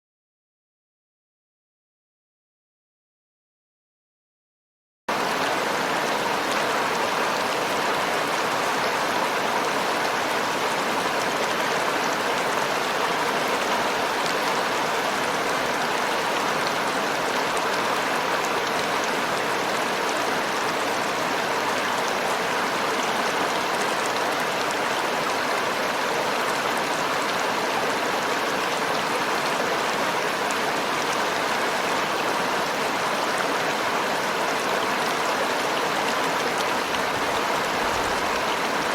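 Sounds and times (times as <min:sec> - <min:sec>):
river water flowing: 0:05.1 - 0:38.9.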